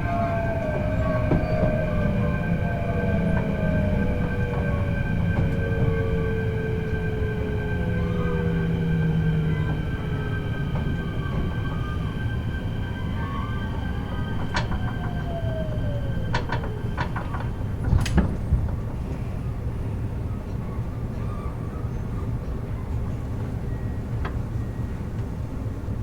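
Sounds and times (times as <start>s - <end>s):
electric train motors whining: 0.0s - 19.1s
train running rumble: 0.0s - 26.0s
wheels clacking over rail joints: 14.2s - 19.2s.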